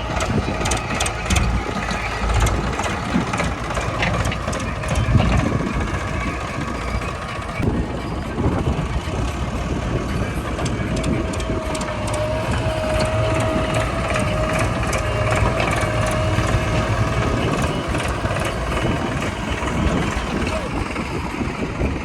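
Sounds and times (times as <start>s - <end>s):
heavy diesel machinery running: 0.0s - 22.0s.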